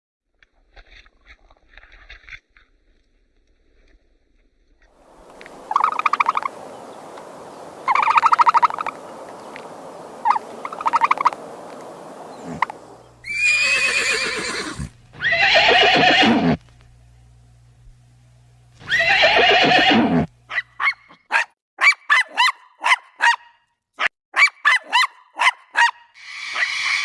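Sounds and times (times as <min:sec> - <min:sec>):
horse whinnying: 0:12.4 - 0:16.6, 0:18.8 - 0:20.3, 0:26.3 - 0:27.0.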